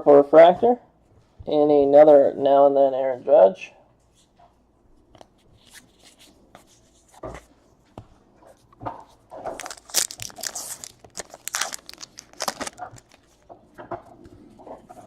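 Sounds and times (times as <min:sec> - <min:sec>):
wrapper crinkling and tearing: 0:09.4 - 0:13.5.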